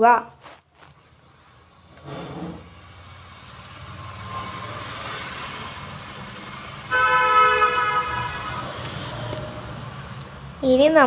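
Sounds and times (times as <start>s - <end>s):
vehicle noise: 0.4s - 11.0s
loud horn honk: 4.1s - 9.6s.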